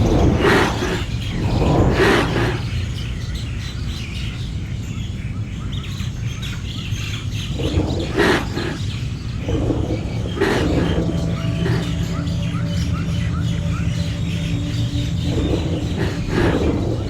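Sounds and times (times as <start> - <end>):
steady low rumble: 0.0 - 3.4, 7.5 - 17.0
small birds chirping: 0.0 - 17.0.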